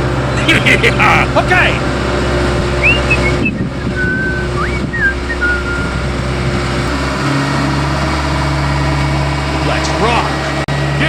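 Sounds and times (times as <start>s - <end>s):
small engine running: 0.0s - 11.0s
rushing noise: 2.4s - 9.0s
high gliding chirps: 2.8s - 6.3s.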